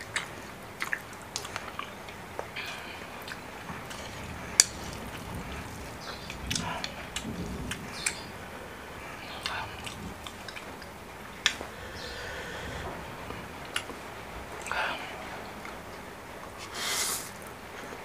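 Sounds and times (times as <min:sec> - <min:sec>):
chewing noodles: 0:00.0 - 0:08.3
rain hiss: 0:00.0 - 0:18.0.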